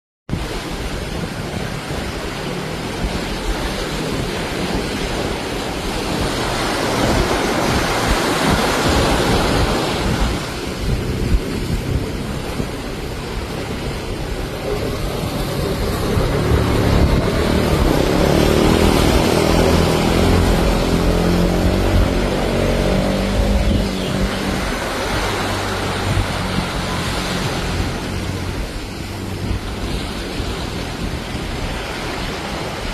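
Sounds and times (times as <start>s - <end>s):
ocean surf on beach: 0.3s - 32.9s
steady rushing noise: 0.3s - 32.9s
vehicle engine hum: 0.3s - 32.9s
wind on microphone: 0.3s - 32.9s.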